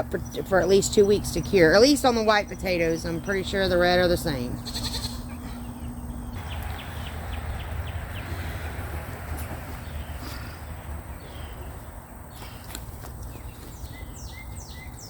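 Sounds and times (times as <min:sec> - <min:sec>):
steady low rumble: 0:05.3 - 0:13.5.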